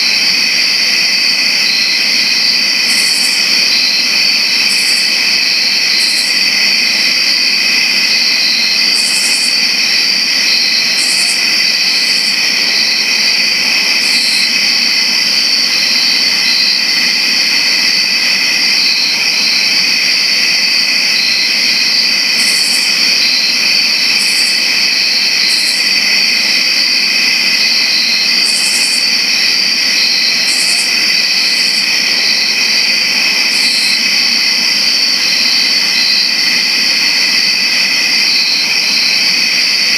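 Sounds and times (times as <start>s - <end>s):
crickets trilling: 0.0s - 39.9s
higher-pitched cricket chirps: 0.0s - 39.9s.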